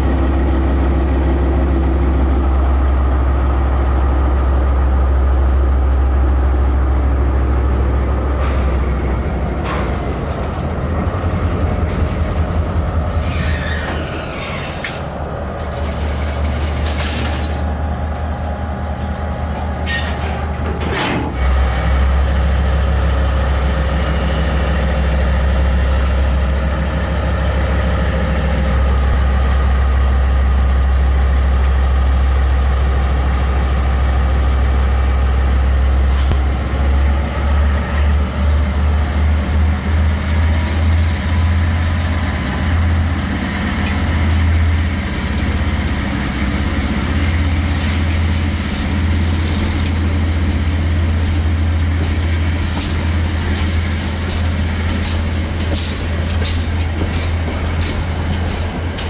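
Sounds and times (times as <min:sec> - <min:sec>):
diesel locomotive engines droning: 0:00.0 - 0:59.0
wagon wheels thumping on rails: 0:51.2 - 0:59.0.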